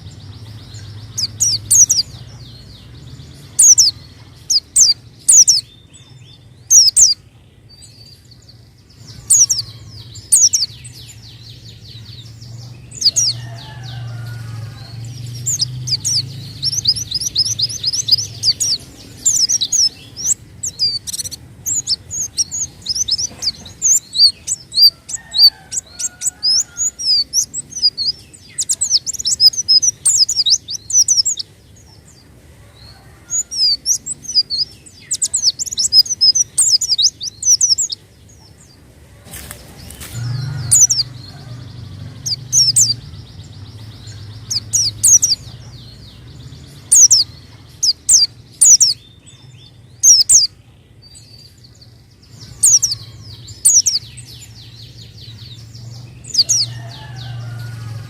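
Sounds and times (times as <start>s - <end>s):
bird chirping rapidly: 0.0s - 7.2s, 9.0s - 32.1s, 33.3s - 38.0s, 39.8s - 50.6s, 52.4s - 58.0s.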